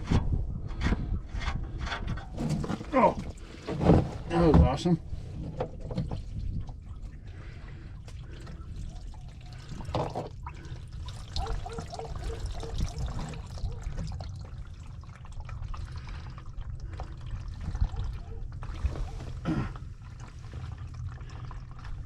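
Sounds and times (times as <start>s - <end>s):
oil trickling into drain pan: 5.8s - 19.1s, 19.9s - 22.0s.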